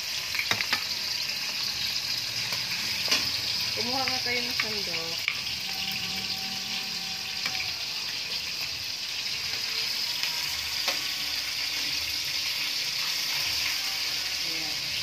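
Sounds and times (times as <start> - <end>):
chicken skin sizzling in oil: 0.0 - 15.0
metal tongs clicking on pan: 4.0 - 5.5.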